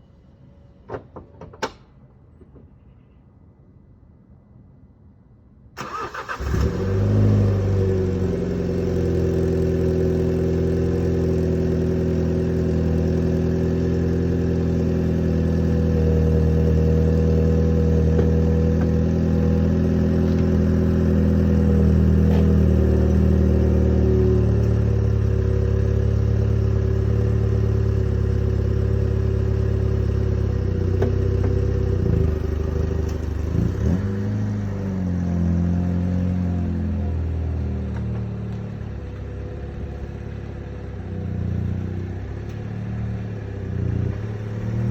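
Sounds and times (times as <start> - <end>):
car engine idling: 7.5 - 33.8.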